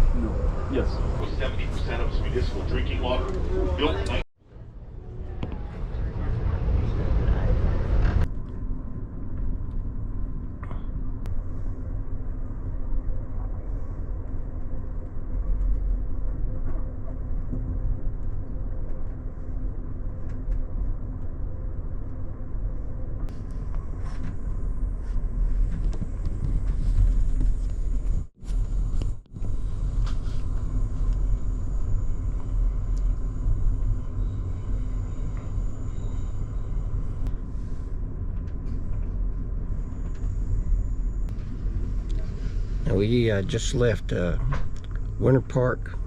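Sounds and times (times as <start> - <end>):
passenger train rumbling: 0.0 - 8.3, 22.3 - 46.0.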